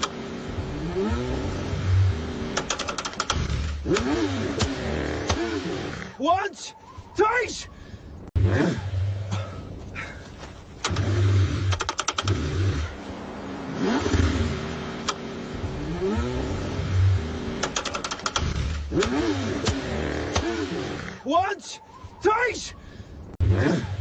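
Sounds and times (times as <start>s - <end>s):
car engine cranking on starter: 0.0s - 0.3s, 2.5s - 5.5s, 10.8s - 12.9s, 17.6s - 20.7s.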